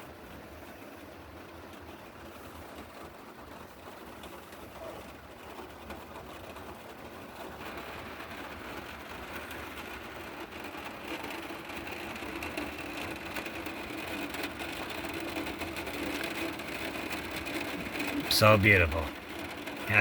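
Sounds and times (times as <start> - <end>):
rain on a van: 0.0 - 20.0
steady hum: 18.0 - 19.2, 19.8 - 20.0.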